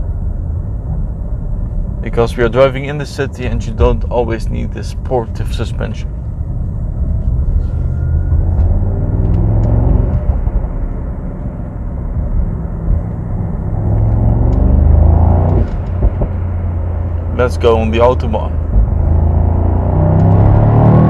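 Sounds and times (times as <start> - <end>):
car engine accelerating: 5.4 - 21.0.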